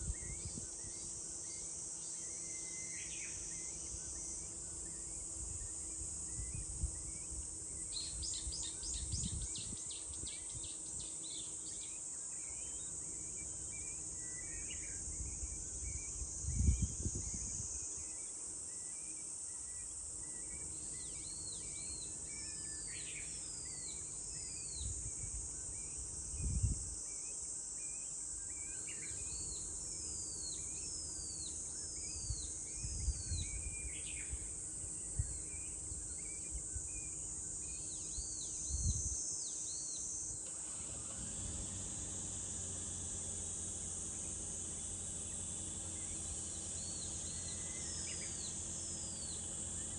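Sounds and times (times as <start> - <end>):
cicadas droning: 0.0 - 49.9
birds calling: 39.5 - 49.9.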